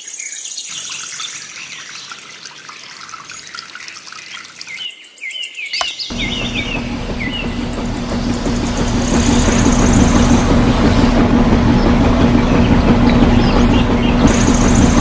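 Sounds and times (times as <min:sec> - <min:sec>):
crackling and trickling: 0:00.7 - 0:04.9, 0:14.2 - 0:15.0
birds chirping: 0:00.7 - 0:15.0
small motor humming: 0:06.1 - 0:15.0.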